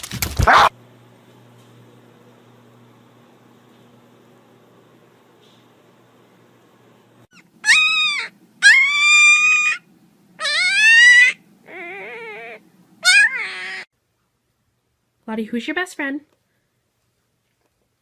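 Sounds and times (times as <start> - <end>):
dog whining: 0.4 - 0.7, 7.3 - 13.9.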